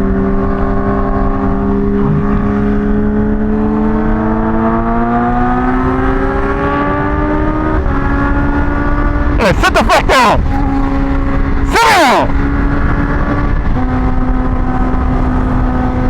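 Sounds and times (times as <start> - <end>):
motorcycle engine revving: 0.8 - 9.4.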